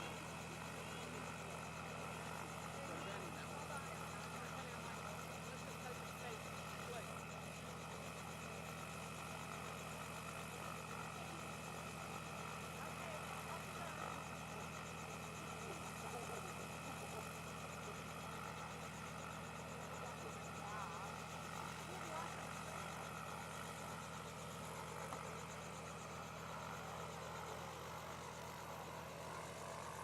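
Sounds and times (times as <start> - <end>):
faint voices: 0.0 - 8.3.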